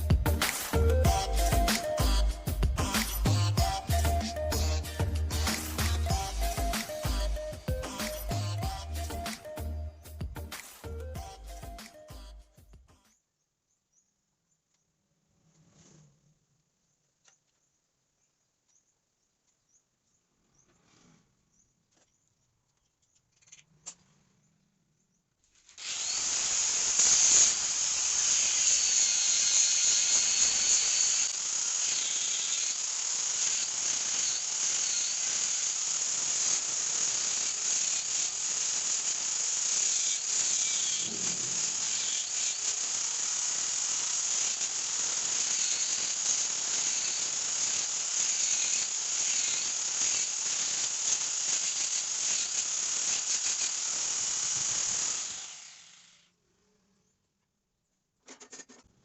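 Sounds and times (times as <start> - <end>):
power tool grinding steel: 0.0 - 12.2, 25.8 - 56.2.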